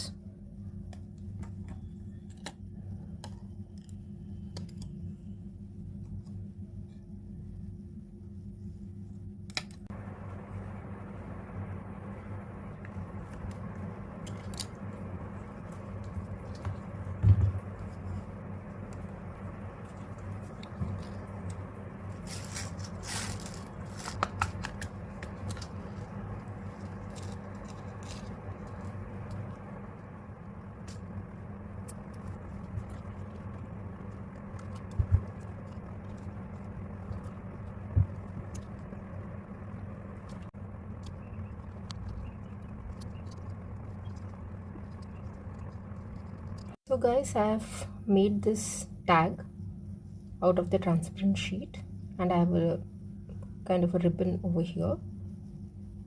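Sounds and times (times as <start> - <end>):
low room hum: 0.0 - 56.0
plastic sheet rustling: 22.1 - 29.3.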